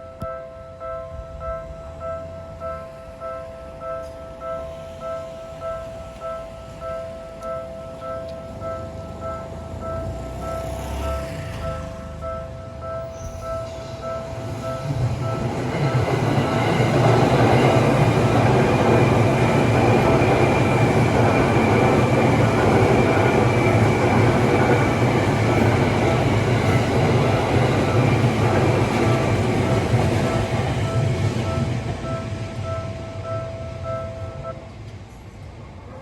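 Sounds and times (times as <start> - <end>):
crossing warning bell ringing: 0.0 - 34.7
train wheels rumbling on rails: 2.6 - 36.0.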